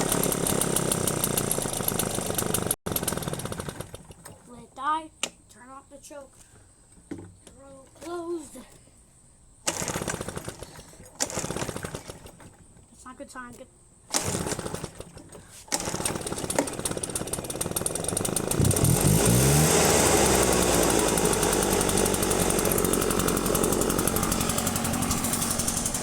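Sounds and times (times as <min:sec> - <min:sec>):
leaf blower engine starting and running: 0:00.0 - 0:04.2, 0:09.7 - 0:12.5, 0:14.1 - 0:26.0.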